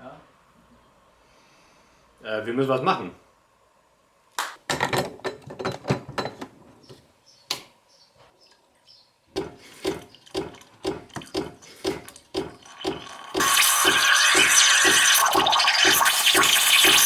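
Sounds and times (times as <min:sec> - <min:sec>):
regular knocking: 0:09.3 - 0:13.1
knocks and clicks: 0:09.4 - 0:13.5.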